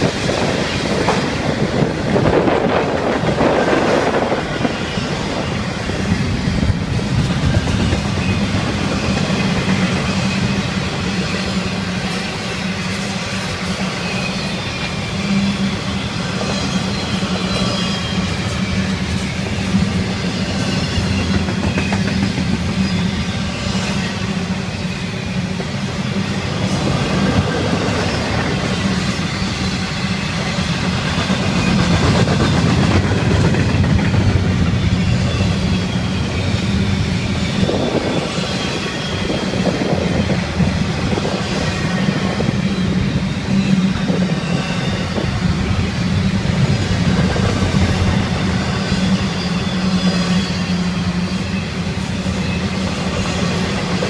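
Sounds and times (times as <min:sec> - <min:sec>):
steel wheels on rails: 0:00.0 - 0:54.0.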